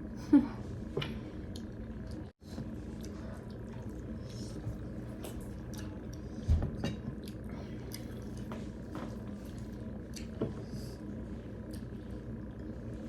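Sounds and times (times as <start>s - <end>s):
wet chewing and mouth clicks: 5.1s - 6.3s, 7.2s - 8.5s.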